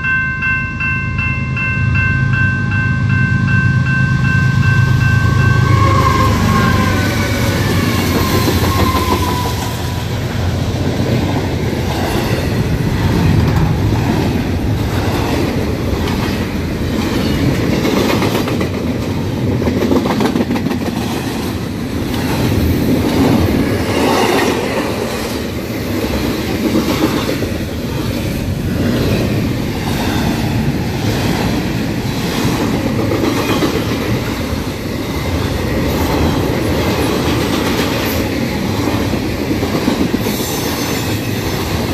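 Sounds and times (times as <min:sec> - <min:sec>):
freight train rumbling: 0:00.0 - 0:41.9.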